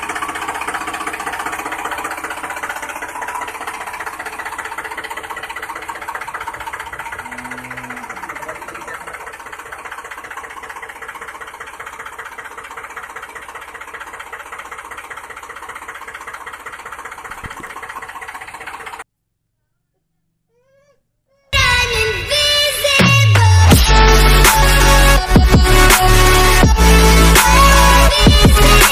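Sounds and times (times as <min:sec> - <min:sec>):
small motor clattering: 0:00.0 - 0:19.0
low hum: 0:02.0 - 0:17.8.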